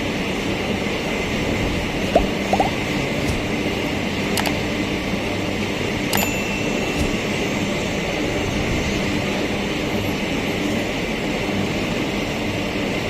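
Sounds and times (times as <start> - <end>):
sharp metallic clicks: 4.4 - 4.7
thin metallic ring: 6.2 - 8.2.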